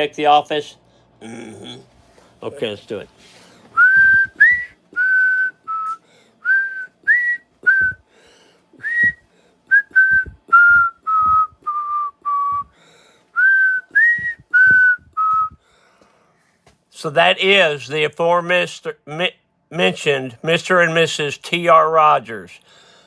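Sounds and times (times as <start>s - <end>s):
person whistling a tune: 3.8s - 8.0s, 8.8s - 12.8s, 13.4s - 15.6s.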